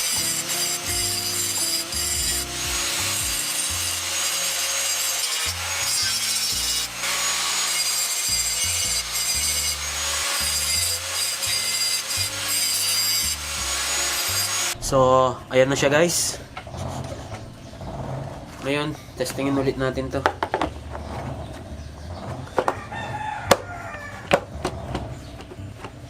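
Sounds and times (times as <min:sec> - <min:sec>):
grinder grinding metal: 0:00.0 - 0:15.1, 0:15.7 - 0:23.5
electronic music with bass: 0:00.1 - 0:04.1.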